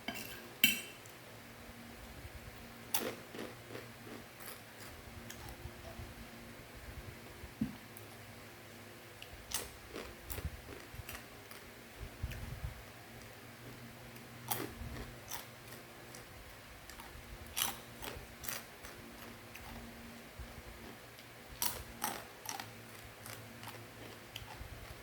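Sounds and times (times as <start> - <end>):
faint steady hum: 0.0 - 25.0
crunchy snack crackling: 2.9 - 5.6, 21.6 - 25.0.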